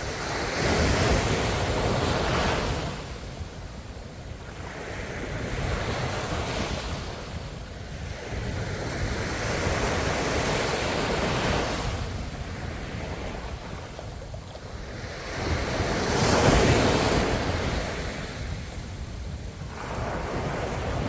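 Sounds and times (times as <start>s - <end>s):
ocean waves washing onto shore: 0.0s - 21.0s
wind buffeting microphone: 0.0s - 21.0s.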